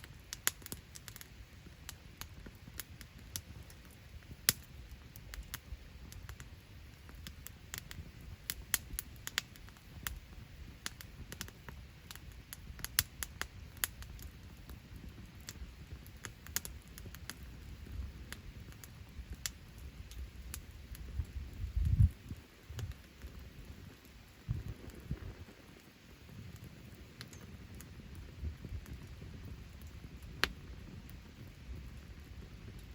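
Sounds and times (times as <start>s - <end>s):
campfire crackling and popping: 0.0s - 32.9s
low rumble: 24.5s - 25.5s.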